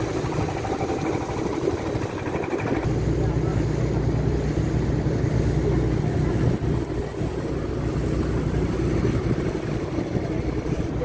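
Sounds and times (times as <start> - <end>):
motor engine running: 0.0 - 11.0.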